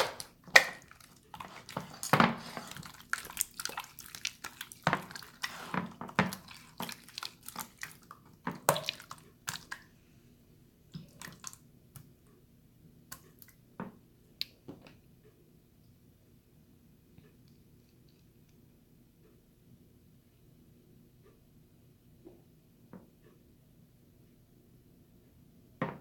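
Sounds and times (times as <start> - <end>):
wet slime squishing: 0.0 - 10.0, 11.0 - 12.1
slime popping and dripping: 2.8 - 5.5, 6.2 - 9.9.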